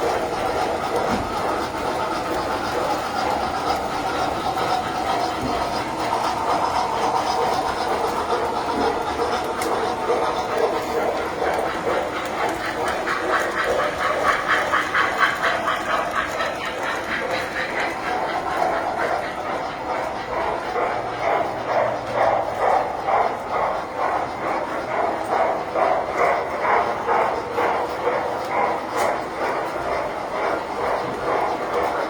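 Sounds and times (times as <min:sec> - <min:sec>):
model trains clattering on track: 0:00.0 - 0:32.0.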